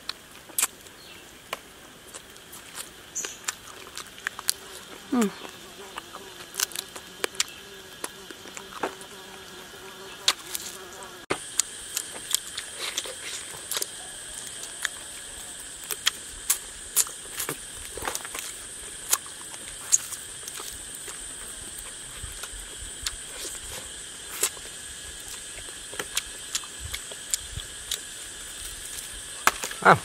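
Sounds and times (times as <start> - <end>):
wet chewing clicks and smacks: 0.0 - 0.8, 2.1 - 8.8, 11.5 - 14.0, 15.8 - 23.6, 24.3 - 28.1
high drone of insects: 0.0 - 30.0.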